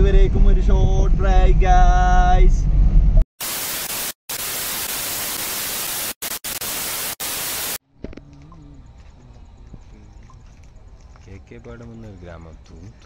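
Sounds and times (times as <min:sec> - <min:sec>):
static hiss: 0:03.4 - 0:07.8.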